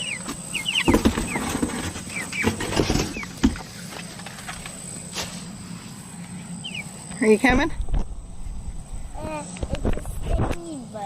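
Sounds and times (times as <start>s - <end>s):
chicks peeping: 0.0s - 7.6s.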